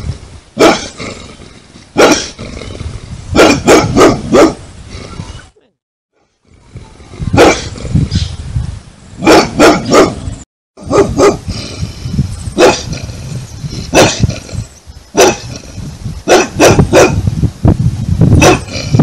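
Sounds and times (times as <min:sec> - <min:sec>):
large dog barking loudly: 0:00.6 - 0:01.0, 0:02.0 - 0:02.4, 0:03.3 - 0:04.6, 0:07.3 - 0:07.8, 0:09.2 - 0:11.5, 0:12.6 - 0:13.0, 0:13.9 - 0:14.4, 0:15.2 - 0:15.6, 0:16.2 - 0:17.2, 0:18.4 - 0:19.0.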